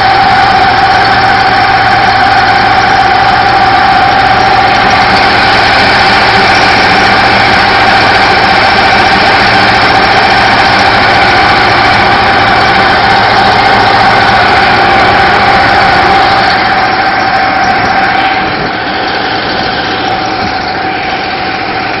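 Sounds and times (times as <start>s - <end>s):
boat engine running steadily: 0.0s - 22.0s.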